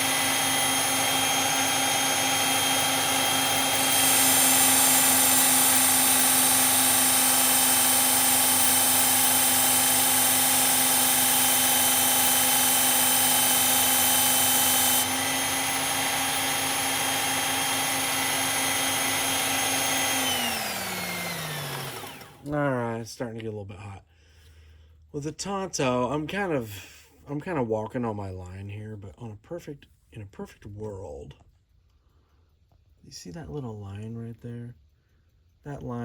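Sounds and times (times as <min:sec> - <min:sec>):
belt sharpener motor whine: 0:00.0 - 0:22.5.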